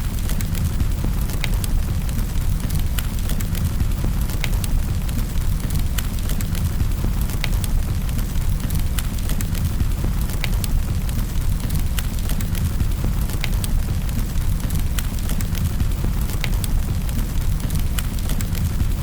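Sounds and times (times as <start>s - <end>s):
fire crackling and popping: 0.0s - 19.0s
fire rumbling: 0.0s - 19.0s.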